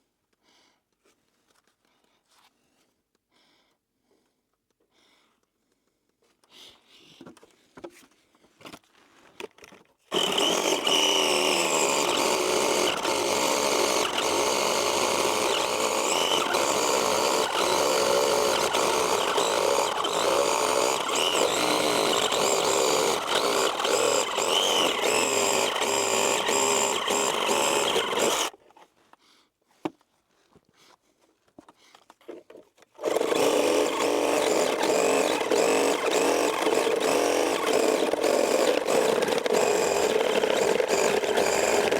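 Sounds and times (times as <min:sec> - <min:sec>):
chainsaw cutting wood: 0:10.1 - 0:28.6, 0:33.0 - 0:41.9.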